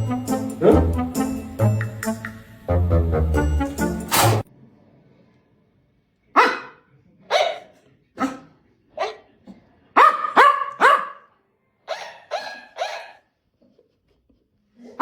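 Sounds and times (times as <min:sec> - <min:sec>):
dog barking: 0:06.3 - 0:09.3, 0:10.0 - 0:13.3.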